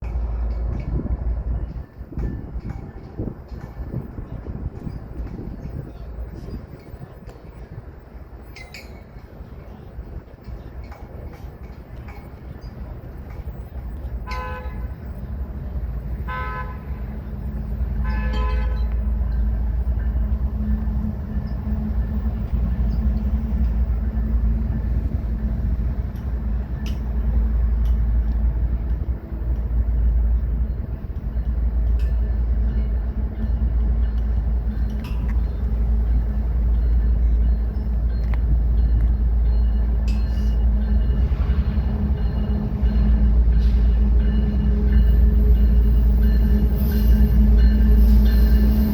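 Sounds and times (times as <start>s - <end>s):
train rumbling past: 0.0s - 48.9s
train horn blasts: 14.2s - 15.0s, 16.2s - 17.2s, 18.0s - 19.1s.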